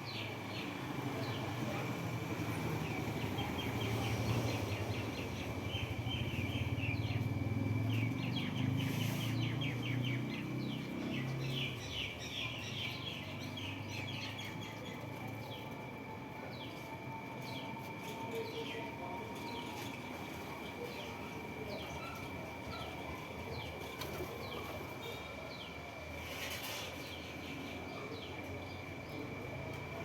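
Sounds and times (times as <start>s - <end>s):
small birds chirping: 2.6s - 15.6s.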